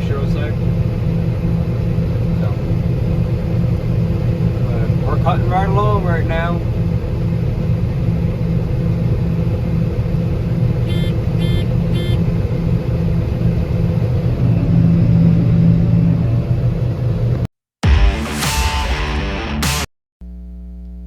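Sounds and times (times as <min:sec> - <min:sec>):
combine harvester droning: 0:00.0 - 0:17.5
short electronic beeps: 0:10.9 - 0:12.2.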